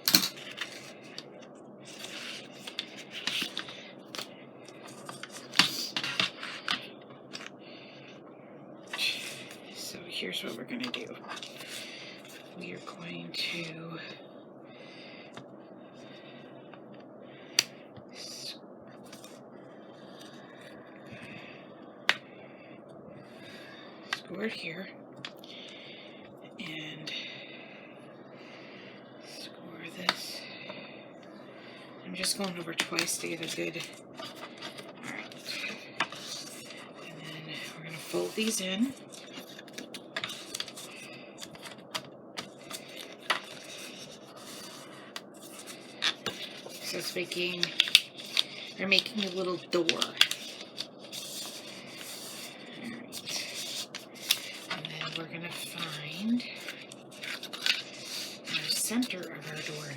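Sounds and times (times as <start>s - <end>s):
paper scraping: 33.0s - 59.9s.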